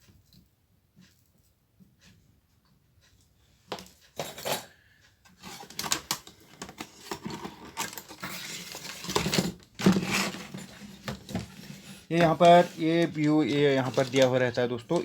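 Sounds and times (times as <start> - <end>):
metal tools clinking on workbench: 4.2 - 4.8, 6.8 - 15.0.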